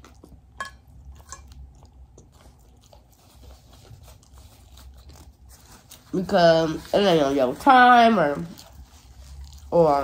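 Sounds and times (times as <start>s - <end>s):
person chewing food: 0.0s - 6.2s, 8.3s - 10.0s.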